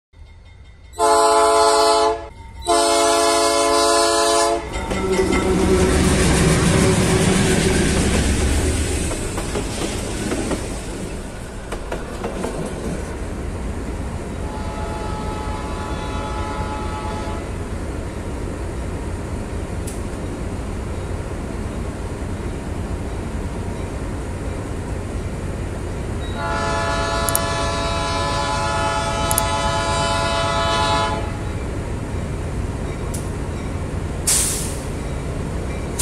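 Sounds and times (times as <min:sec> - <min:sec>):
train horn blasts: 0:01.0 - 0:06.0, 0:14.4 - 0:17.6, 0:26.3 - 0:31.5
locomotive engine running: 0:02.5 - 0:36.0
wagons clattering over rails: 0:04.6 - 0:13.2.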